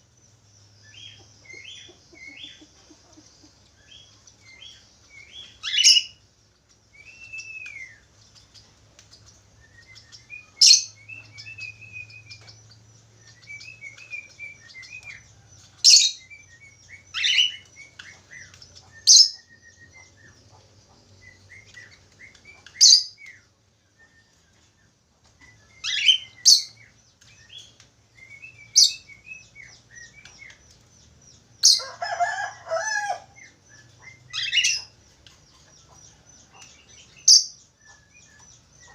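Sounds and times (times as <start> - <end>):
budgerigars warbling: 17.0 - 23.4, 31.6 - 35.0.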